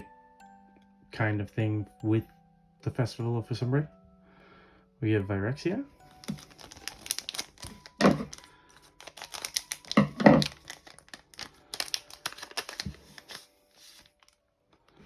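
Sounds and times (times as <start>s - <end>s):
cards rustling and clicking: 6.1s - 14.3s.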